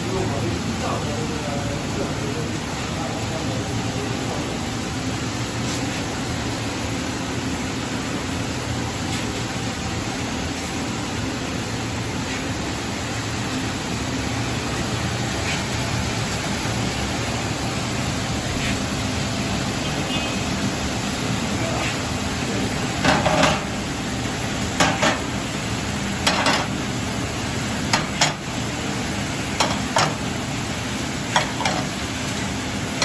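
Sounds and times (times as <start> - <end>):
dishwasher hissing and humming: 0.0 - 33.0
dishes clinking and clattering: 23.0 - 23.8, 24.8 - 25.3, 26.2 - 26.8, 27.9 - 28.5, 29.6 - 30.3, 31.3 - 32.0.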